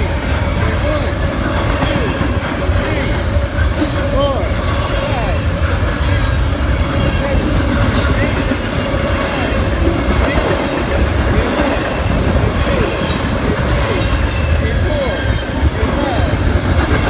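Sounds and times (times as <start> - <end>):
freight train wheels rumbling: 0.0 - 17.0
wheels squealing: 4.4 - 17.0.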